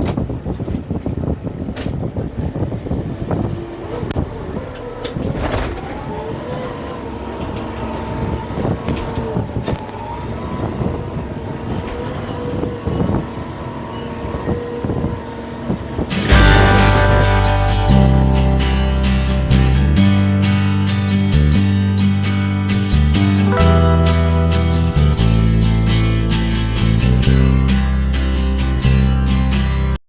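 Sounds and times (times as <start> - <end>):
tractor mechanical whine: 2.8 - 28.4
strummed acoustic guitar music: 15.8 - 30.0.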